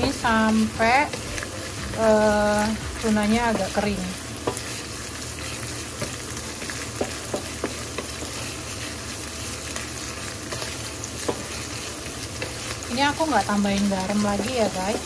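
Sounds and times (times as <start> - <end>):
food sizzling in oil: 0.0 - 15.0
wooden spatula tapping and scraping pan: 3.0 - 4.8, 6.0 - 8.8, 10.4 - 13.4.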